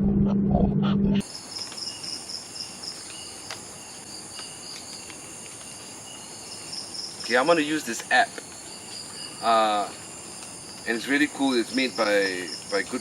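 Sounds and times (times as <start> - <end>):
loud low hum: 0.0 - 1.2
crickets chirping: 1.2 - 13.0.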